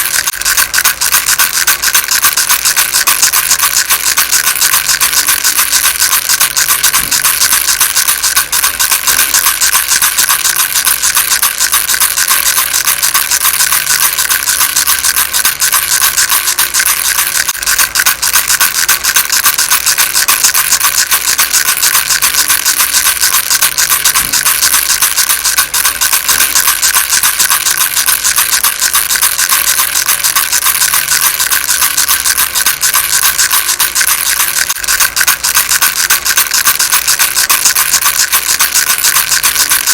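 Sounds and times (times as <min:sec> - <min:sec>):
baby rattle shaken fast: 0:00.0 - 0:39.9.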